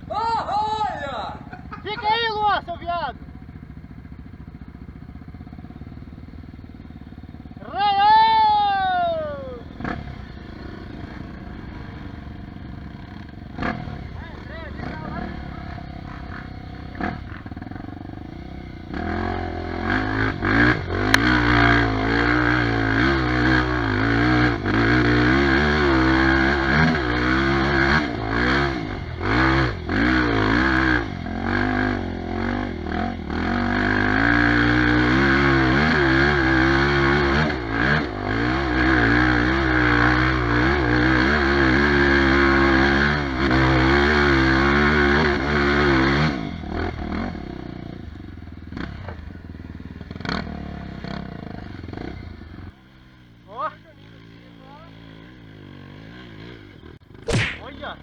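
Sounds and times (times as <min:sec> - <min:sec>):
motorcycle engine revving: 0:00.0 - 0:58.0
sharp click: 0:57.3 - 0:57.8.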